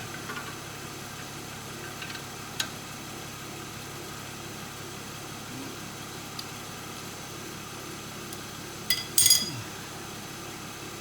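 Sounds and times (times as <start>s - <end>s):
low background hum: 5.2s - 10.6s
light metallic clinks: 8.9s - 9.6s.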